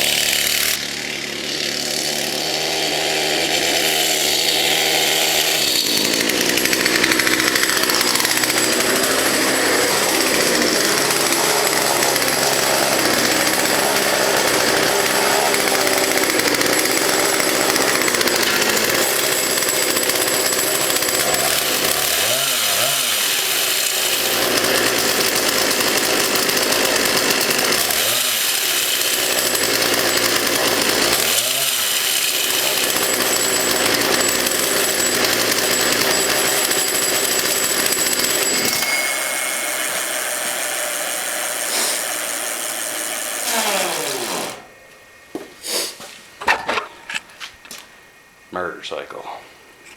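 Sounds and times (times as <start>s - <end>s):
motorized bicycle engine buzzing: 6.0s - 44.7s.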